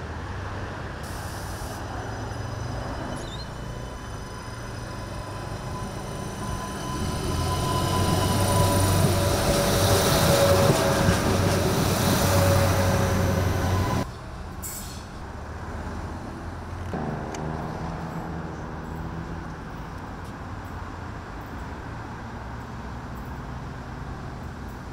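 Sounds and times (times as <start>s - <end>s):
distant railcar engine hum: 0.0s - 15.5s
diesel railcar passing: 0.0s - 24.9s.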